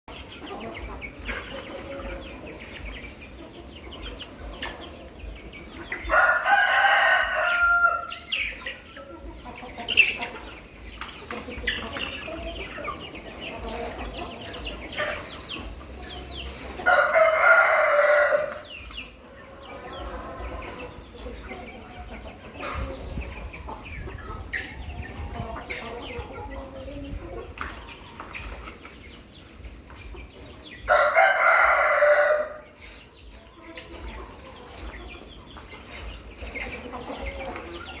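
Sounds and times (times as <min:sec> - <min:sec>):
chickens clucking: 0:00.0 - 0:38.0
rooster crowing: 0:06.1 - 0:08.2, 0:16.9 - 0:18.5, 0:30.9 - 0:32.6.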